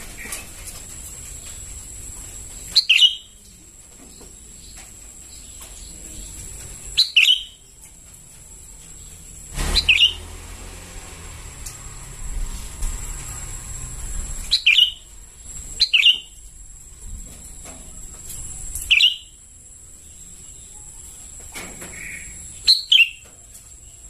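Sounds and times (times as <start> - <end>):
bird chirping calls: 2.5 - 10.4, 14.2 - 16.5, 18.2 - 19.4, 20.0 - 24.0.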